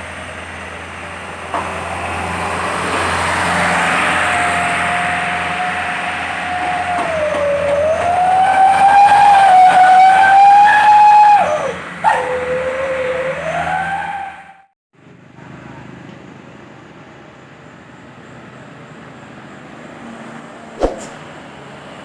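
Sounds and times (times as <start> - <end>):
truck exhaust whistle howling: 3.0 - 14.7.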